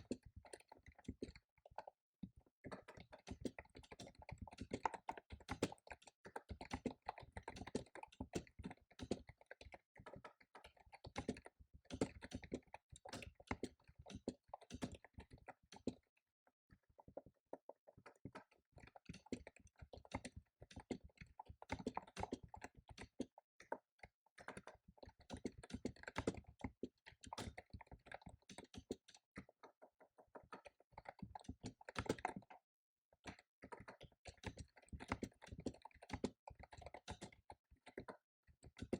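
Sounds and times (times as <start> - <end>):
typing on computer keyboard: 2.7 - 16.0, 17.2 - 32.6, 33.2 - 38.9.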